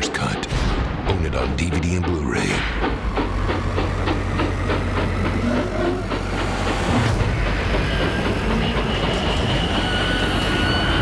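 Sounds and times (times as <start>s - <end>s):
subway train running: 1.1s - 11.0s
high steady squeal: 5.4s - 11.0s.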